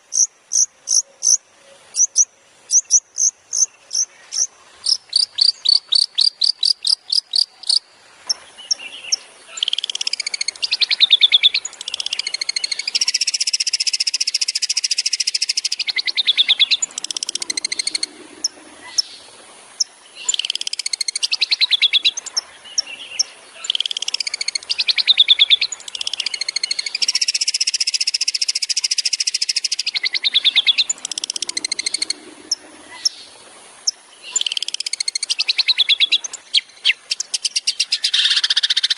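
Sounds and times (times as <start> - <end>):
bird song with fast trills: 0.0 - 38.9.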